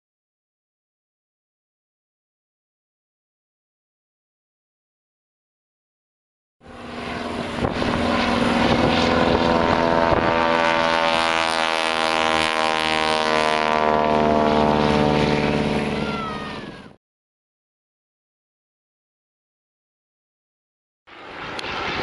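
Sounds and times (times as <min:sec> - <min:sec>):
propeller aircraft engine droning: 0:06.6 - 0:17.0, 0:21.1 - 0:22.0.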